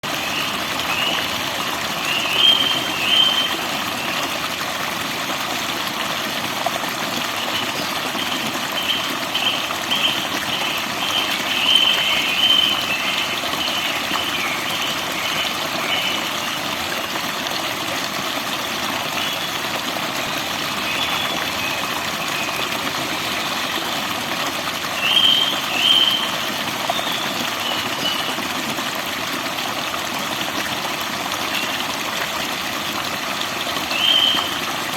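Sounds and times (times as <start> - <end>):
running water: 0.0 - 34.9
birds chirping: 2.0 - 4.2, 20.3 - 23.2.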